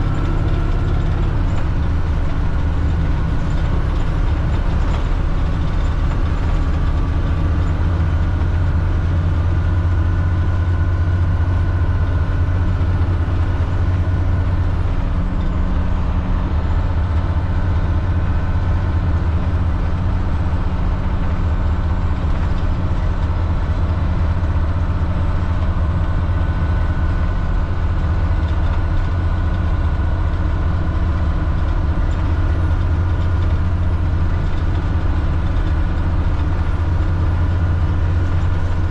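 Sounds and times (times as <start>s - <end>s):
bus diesel engine droning: 0.0s - 38.9s.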